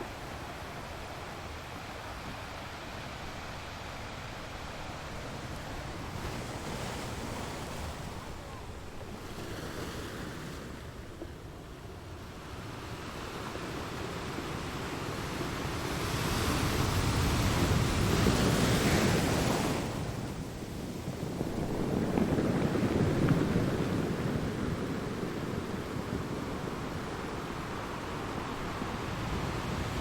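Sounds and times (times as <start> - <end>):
waves washing in: 12.5 - 30.0.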